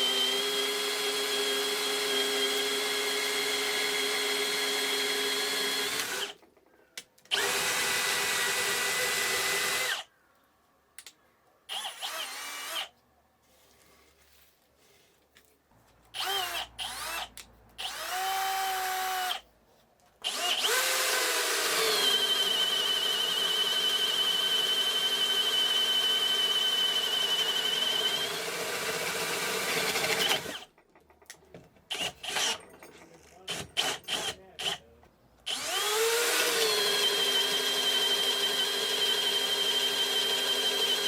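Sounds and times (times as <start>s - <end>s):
cordless drill motor whine: 0.0s - 6.4s, 7.3s - 10.1s, 11.7s - 12.9s, 16.2s - 17.2s, 17.8s - 19.4s, 20.2s - 30.6s, 35.5s - 41.0s.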